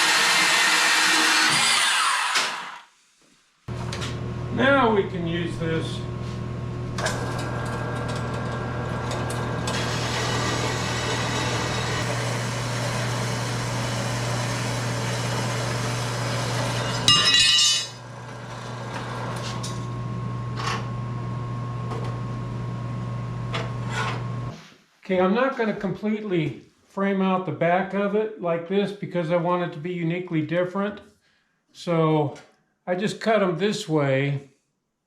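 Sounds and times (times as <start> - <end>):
bandsaw cutting steel: 0.0 - 2.8, 7.0 - 19.8.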